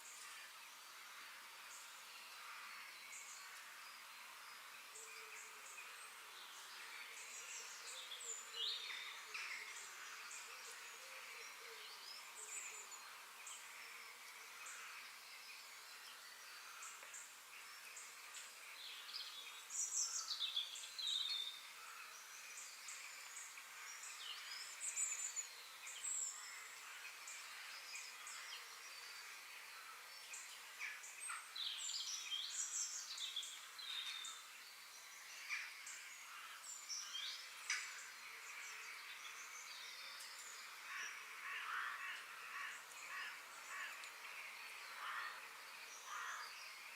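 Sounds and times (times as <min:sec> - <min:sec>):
steady high hiss: 0:00.0 - 0:46.9
birds chirping: 0:01.6 - 0:46.9.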